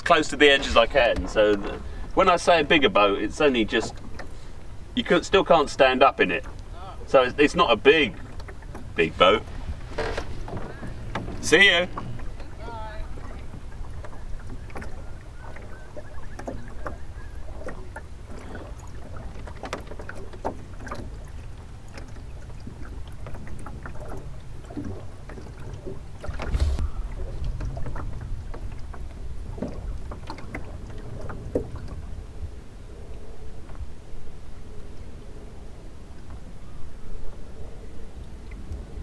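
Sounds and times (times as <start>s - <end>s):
boat knocks and clicks: 0.0s - 32.6s
water splashing against hull: 0.0s - 39.0s
wind rumble on microphone: 8.0s - 39.0s.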